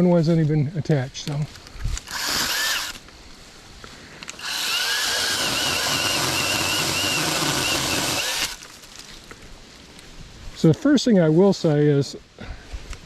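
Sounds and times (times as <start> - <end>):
mini chainsaw cutting limb: 2.0 - 3.0, 4.2 - 8.8.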